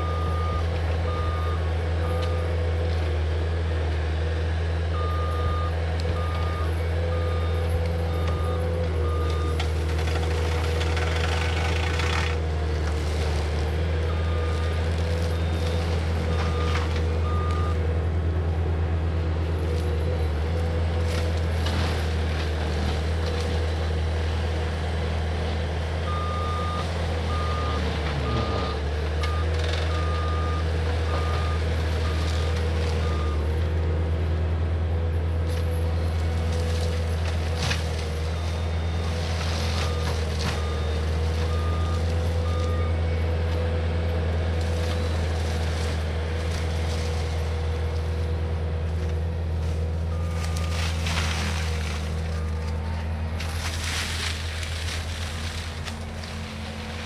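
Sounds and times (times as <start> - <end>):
diesel engine running at high revs: 0.0 - 57.0.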